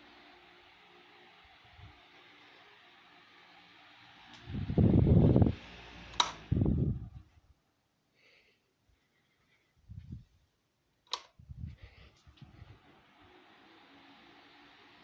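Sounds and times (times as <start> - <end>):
fan air rumbles: 4.3 - 7.5, 11.1 - 13.1
sharp clicks: 6.2 - 6.4, 11.1 - 11.4.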